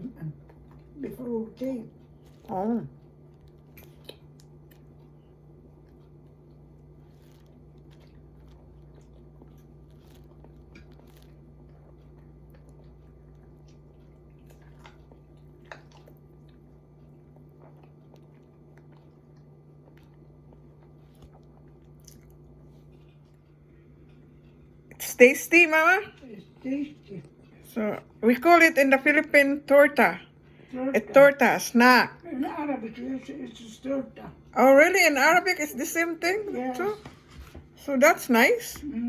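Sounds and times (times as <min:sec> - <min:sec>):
quiet chewing: 0:00.0 - 0:28.2
steady low hum: 0:00.0 - 0:39.0.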